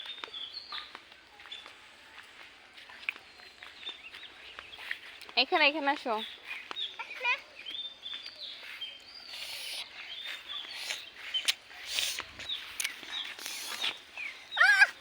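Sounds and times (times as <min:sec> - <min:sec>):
small birds chirping: 0:00.0 - 0:15.0
rustling noises: 0:08.6 - 0:15.0.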